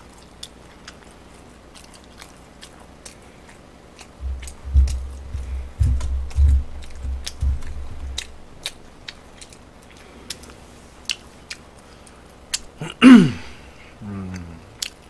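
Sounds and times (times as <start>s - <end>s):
man chewing food: 0.0s - 15.0s
brief low hum: 4.2s - 8.5s.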